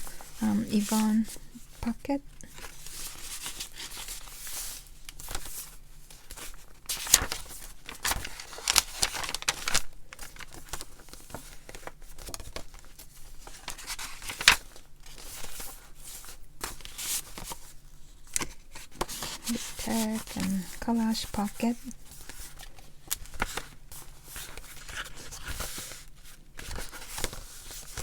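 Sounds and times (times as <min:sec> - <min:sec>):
paper rustling and crinkling: 0:00.0 - 0:28.0.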